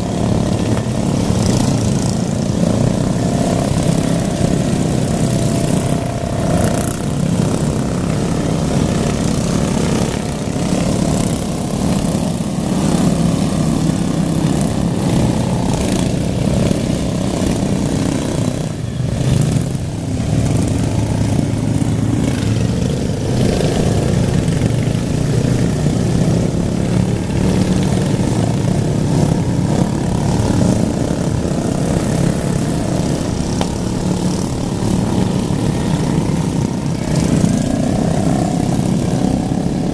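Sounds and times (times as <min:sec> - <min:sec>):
lawn mower engines revving: 0:00.0 - 0:39.9.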